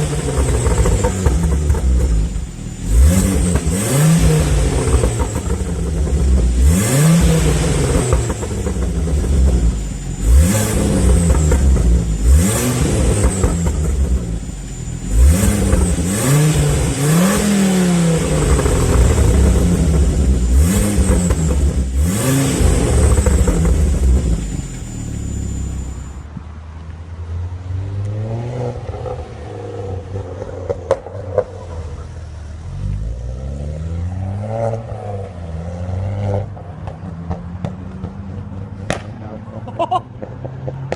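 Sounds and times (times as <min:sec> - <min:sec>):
car engine revving: 0:00.0 - 0:26.2
exhaust crack: 0:00.0 - 0:26.5, 0:36.5 - 0:40.9.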